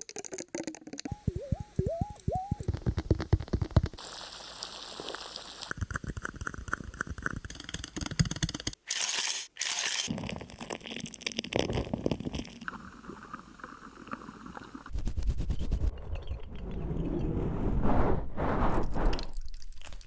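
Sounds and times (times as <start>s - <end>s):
crackling and crinkling sounds: 0.0s - 8.7s, 9.9s - 16.8s, 18.4s - 20.0s
low rumble: 14.9s - 20.0s.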